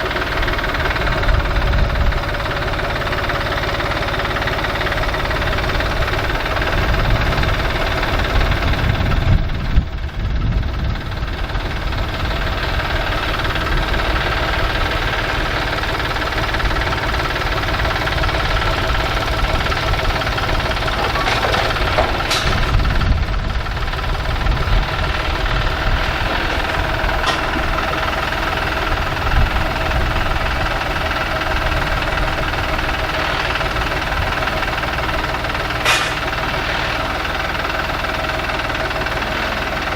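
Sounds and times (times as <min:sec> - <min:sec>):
tractor engine running: 0:00.0 - 0:39.9
brief sharp sounds: 0:35.8 - 0:37.1.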